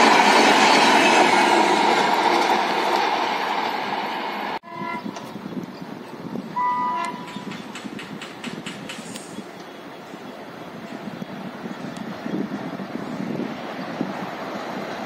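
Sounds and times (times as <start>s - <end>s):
train passing at speed: 0.0s - 15.0s
train horn: 4.6s - 5.1s, 6.6s - 7.4s.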